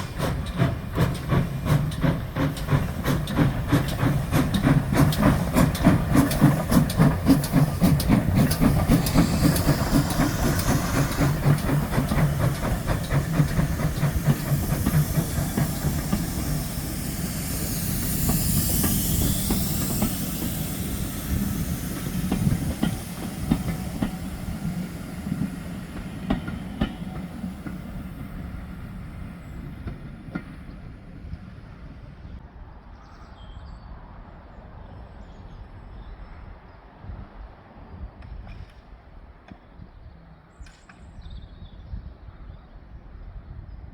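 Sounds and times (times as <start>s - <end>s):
steam hiss: 0.0s - 31.9s
train clatter: 0.0s - 32.0s
steam locomotive passing: 0.0s - 32.7s.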